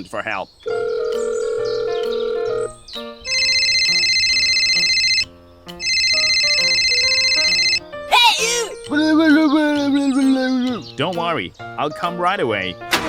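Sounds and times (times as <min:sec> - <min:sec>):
telephone ringing: 0:00.6 - 0:07.8
background music: 0:00.7 - 0:13.0.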